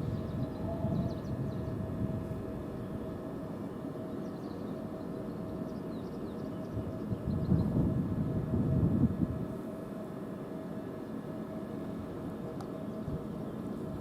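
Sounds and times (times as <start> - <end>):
small birds chirping: 4.0 - 7.7.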